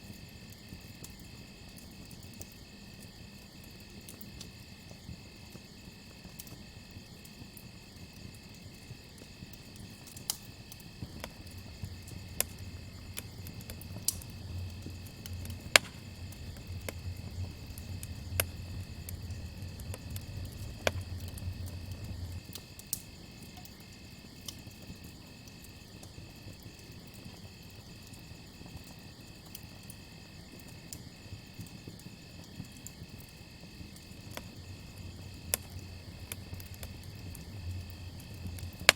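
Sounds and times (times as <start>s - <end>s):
campfire crackling: 0.0s - 38.9s
crickets chirping: 0.0s - 38.9s
low rumble: 11.0s - 22.5s.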